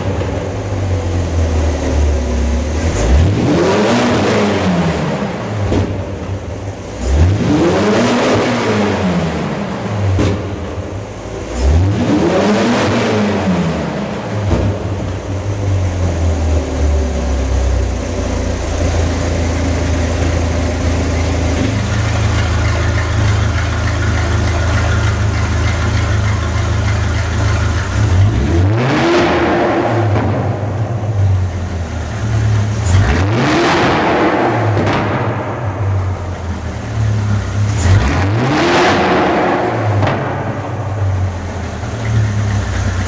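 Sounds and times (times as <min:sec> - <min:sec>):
sports car engine revving: 0:00.0 - 0:43.0.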